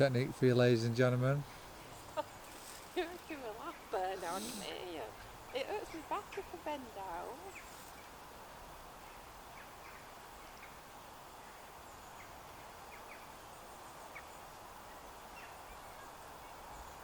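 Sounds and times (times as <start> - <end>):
low background hiss: 0.0 - 17.0.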